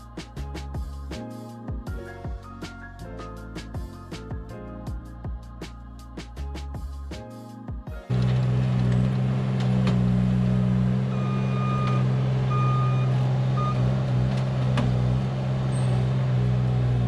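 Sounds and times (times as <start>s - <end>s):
diesel engine running: 8.1s - 17.0s
backup alarm beeps: 11.1s - 14.0s.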